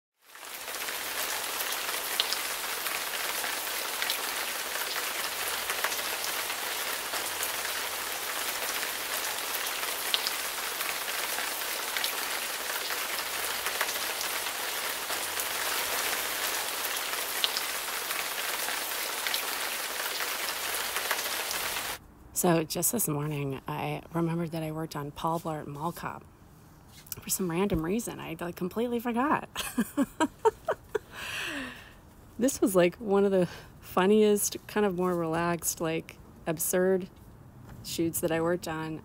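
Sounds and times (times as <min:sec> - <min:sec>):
steady rain hiss: 0:00.2 - 0:22.0, 0:29.6 - 0:32.8.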